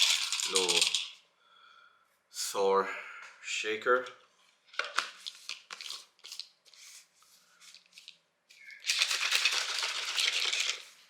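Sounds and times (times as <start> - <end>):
shaker bottle rattling: 0.0 - 1.2, 8.0 - 11.0.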